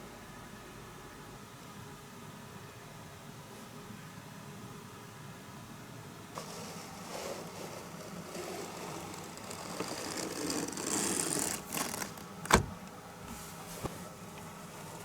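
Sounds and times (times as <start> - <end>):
rustling and scraping of objects: 6.4 - 15.0.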